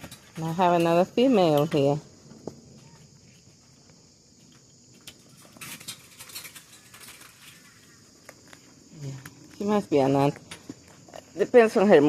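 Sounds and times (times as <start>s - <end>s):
insects chirring: 0.0s - 12.0s
soft crackling and rustling: 1.8s - 11.4s.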